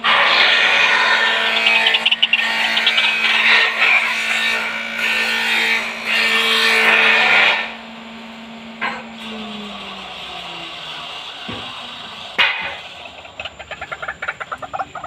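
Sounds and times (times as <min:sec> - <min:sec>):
waterhen croaking call: 0:00.8 - 0:03.7.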